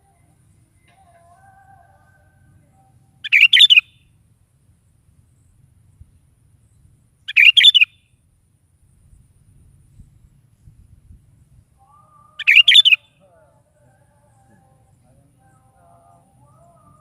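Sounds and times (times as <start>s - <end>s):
bulbul singing: 0.0s - 4.2s, 6.6s - 8.2s, 11.6s - 17.0s.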